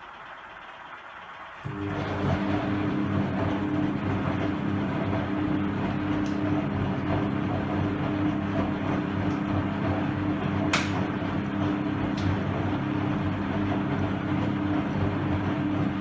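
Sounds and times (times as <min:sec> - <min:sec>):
washing machine motor humming: 0:00.0 - 0:16.0
sharp click: 0:10.7 - 0:11.0.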